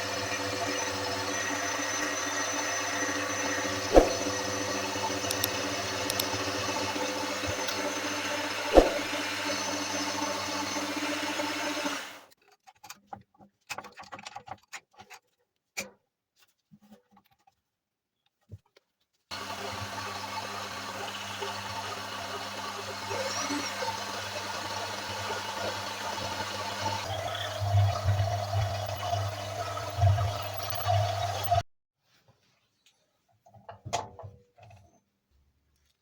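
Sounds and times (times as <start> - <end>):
electric motor humming: 0.0 - 12.2, 19.3 - 31.6.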